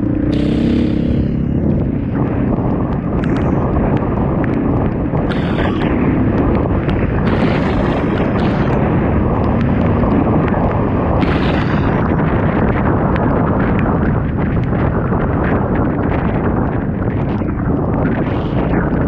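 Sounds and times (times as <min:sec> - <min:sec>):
motorcycle engine: 0:00.0 - 0:14.0
sharp ticks: 0:00.0 - 0:15.9
wind buffeting microphone: 0:00.0 - 0:19.0
hissy surges: 0:05.3 - 0:05.9.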